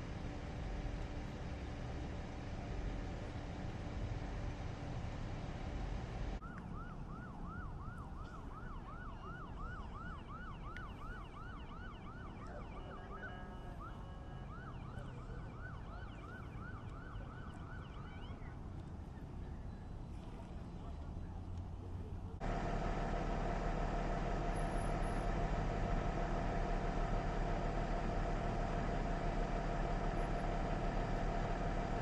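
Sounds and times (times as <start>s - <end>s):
vehicle rumble: 0.0s - 32.0s
emergency siren yelping: 6.4s - 18.6s, 22.4s - 32.0s.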